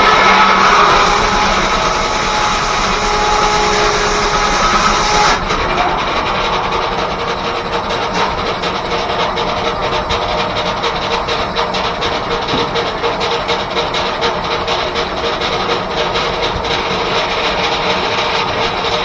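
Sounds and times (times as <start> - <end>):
steam hiss with whining tones: 0.0 - 10.4
rapid machinery beat: 0.0 - 19.0.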